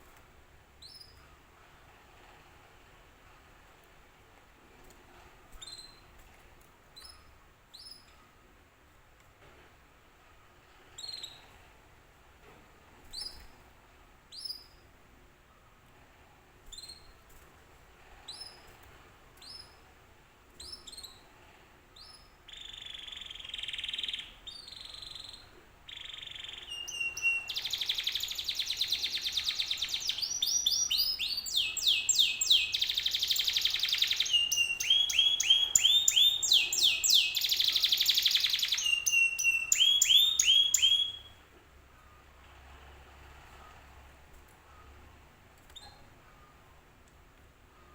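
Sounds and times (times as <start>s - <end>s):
canary singing: 22.0s - 41.4s.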